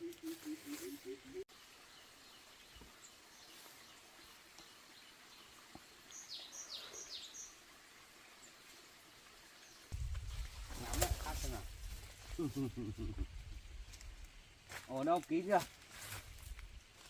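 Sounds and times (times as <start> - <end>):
bird chirping: 0.0 - 3.6, 4.2 - 7.6
faint outdoor hiss: 0.0 - 17.0.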